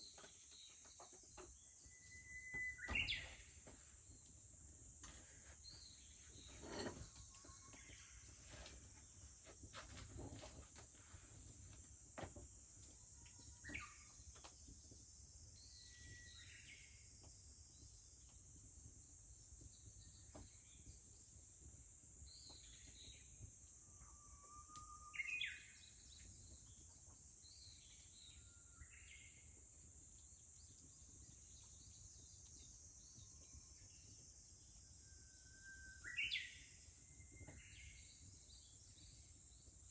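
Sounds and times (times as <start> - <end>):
wood fire popping: 2.7 - 24.0.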